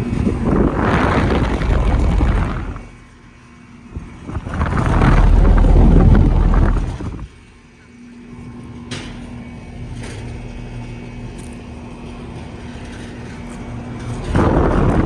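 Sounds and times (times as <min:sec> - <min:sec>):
compressor hum: 0:00.0 - 0:15.0
condenser fans rumbling: 0:00.0 - 0:15.0
sudden rush of noise: 0:04.2 - 0:07.3.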